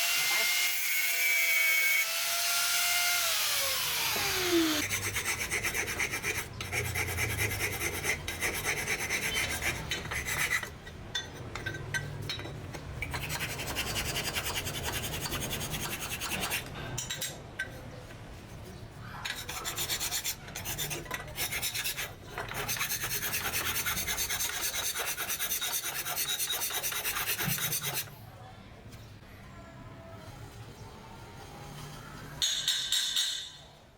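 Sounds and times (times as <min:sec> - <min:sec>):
abrasive rasping on metal: 0:04.8 - 0:10.8, 0:19.2 - 0:28.1.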